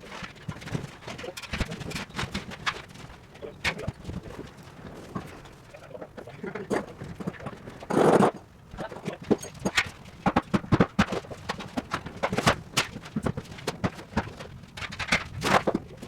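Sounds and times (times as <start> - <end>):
demolition knocking and clattering: 9.1 - 16.0.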